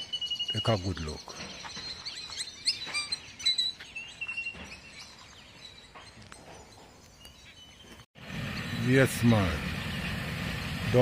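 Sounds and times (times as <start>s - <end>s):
outdoor background noise: 0.0s - 11.0s
small birds chirping: 0.0s - 11.0s.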